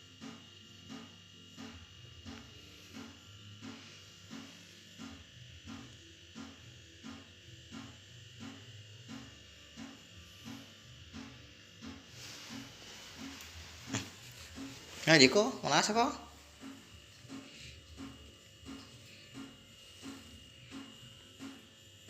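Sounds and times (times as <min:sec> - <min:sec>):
cat purring: 0:12.2 - 0:15.1.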